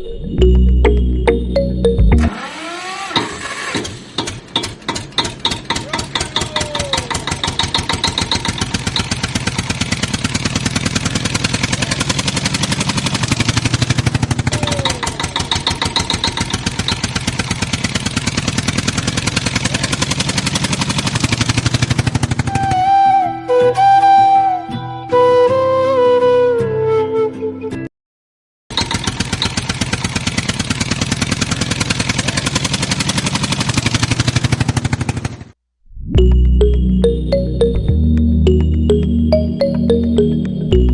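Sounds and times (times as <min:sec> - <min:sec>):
tractor engine chugging: 0:02.4 - 0:22.5, 0:28.7 - 0:35.5.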